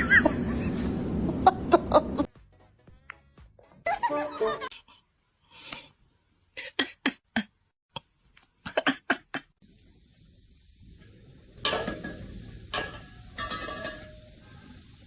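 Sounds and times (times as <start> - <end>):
steady hiss of noise: 9.6 - 15.0.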